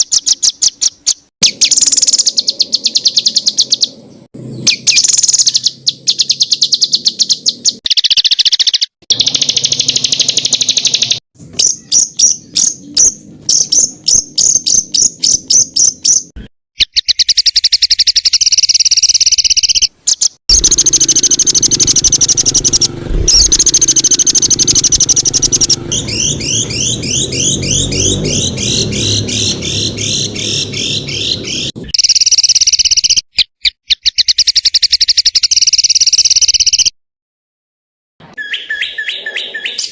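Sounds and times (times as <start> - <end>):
songbird singing: 0.0 - 36.9, 38.2 - 39.9
downward-sliding bird notes: 20.5 - 31.9.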